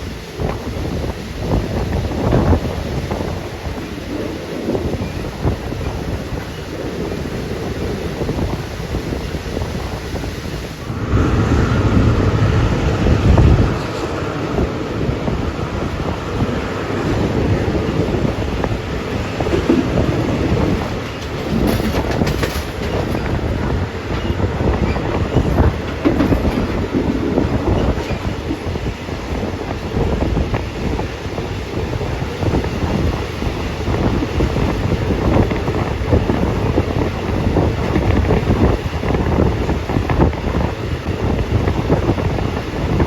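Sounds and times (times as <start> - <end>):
wind buffeting microphone: 0.0 - 43.0
rumbling vehicle noise: 10.7 - 29.0.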